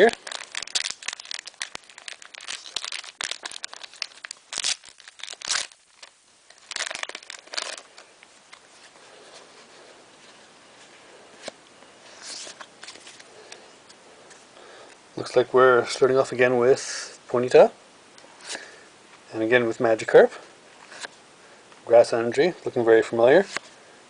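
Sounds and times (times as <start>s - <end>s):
foil pack tearing and crinkling: 0.0s - 8.0s
faint rustles and clicks: 0.0s - 15.0s.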